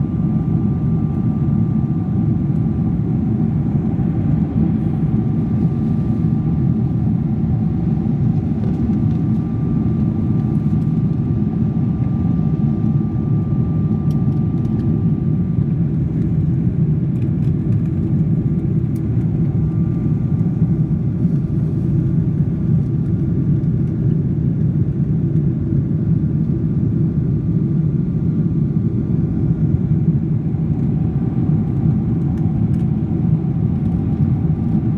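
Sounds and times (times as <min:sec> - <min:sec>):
airliner cabin roar: 0:00.0 - 0:34.9.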